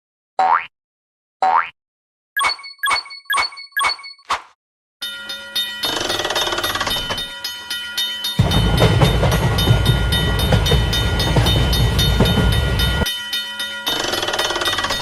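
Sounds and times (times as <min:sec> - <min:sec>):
rhythmic ringing: 0:05.0 - 0:15.0
train rumble with clatter: 0:08.3 - 0:13.1.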